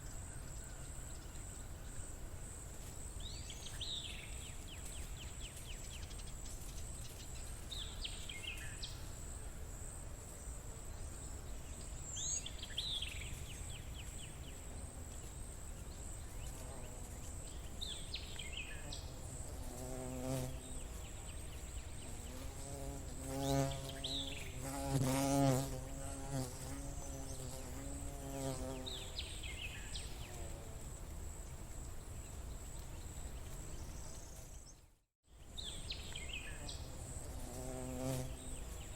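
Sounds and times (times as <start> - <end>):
flying insect buzzing: 16.2 - 31.0, 36.1 - 38.9.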